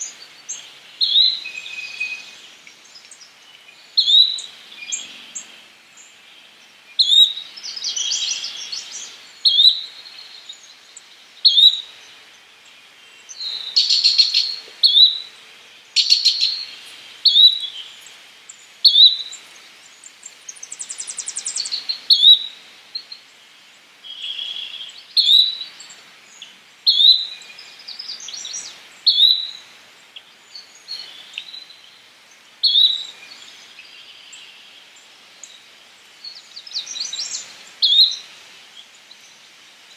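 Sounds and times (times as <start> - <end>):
other birds chirping: 13.2 - 23.2
rising whistled bird call: 17.2 - 17.8, 24.1 - 25.6, 26.9 - 27.4, 28.3 - 29.6.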